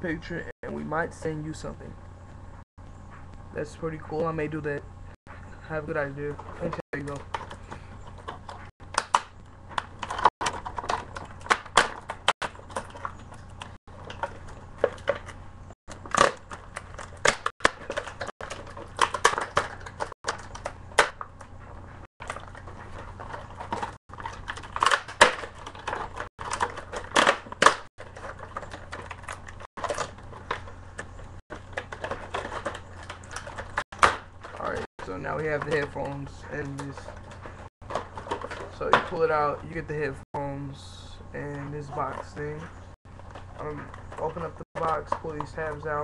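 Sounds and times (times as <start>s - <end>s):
steady low hum: 0.0s - 46.0s
packaging crinkling and clicking: 6.6s - 39.2s.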